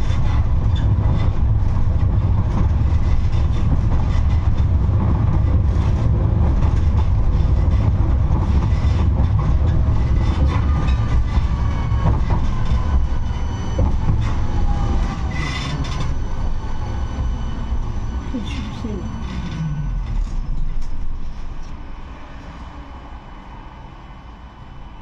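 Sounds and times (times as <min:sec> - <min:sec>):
tram rumbling along rails: 0:00.0 - 0:25.0
faint falling whine: 0:11.6 - 0:25.0.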